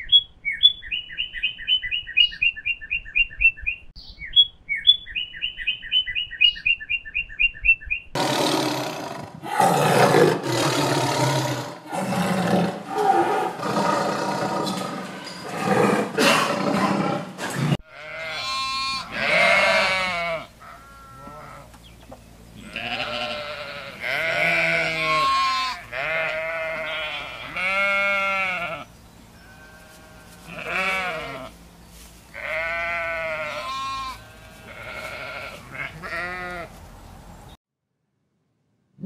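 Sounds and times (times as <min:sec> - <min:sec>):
goats bleating: 0:17.8 - 0:21.7, 0:22.6 - 0:31.6, 0:32.3 - 0:36.7.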